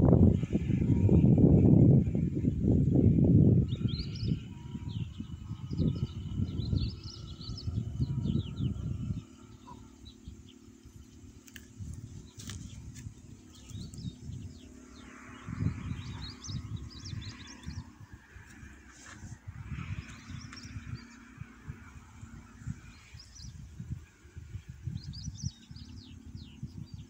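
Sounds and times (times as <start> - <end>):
wind rumble on microphone: 0.0 - 27.0
small birds chirping: 2.1 - 27.0.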